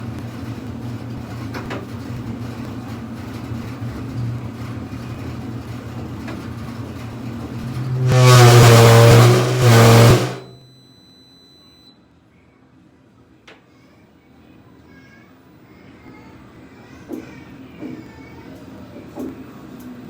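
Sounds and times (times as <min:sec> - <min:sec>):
loud steady-pitched tone: 0:07.6 - 0:10.7.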